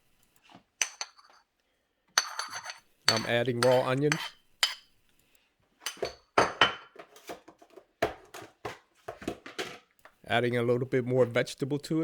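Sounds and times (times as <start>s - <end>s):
utensil scraping a dish: 2.2s - 4.9s.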